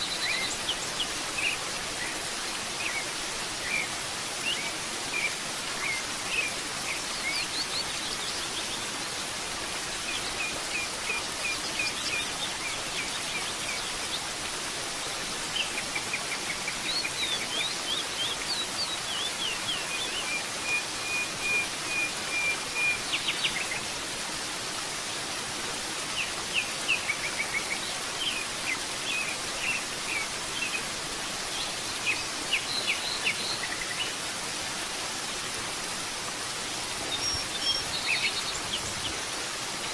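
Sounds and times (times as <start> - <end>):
waterfall rushing: 0.0 - 39.9
songbirds chirping: 9.9 - 24.0, 35.8 - 39.9.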